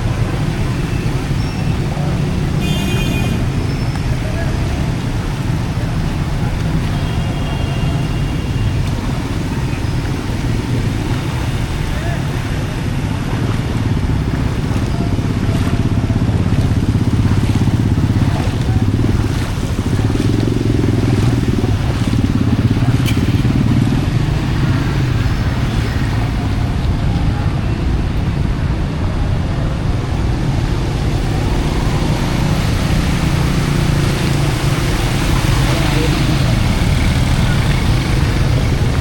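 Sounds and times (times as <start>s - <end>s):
vehicle engines running: 0.0s - 39.0s
crowd voices: 21.6s - 39.0s.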